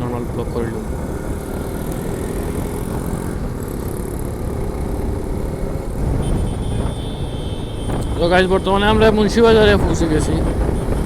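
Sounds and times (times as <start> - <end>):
motorcycle engine running: 0.0 - 8.7
wind and road noise: 0.0 - 11.0.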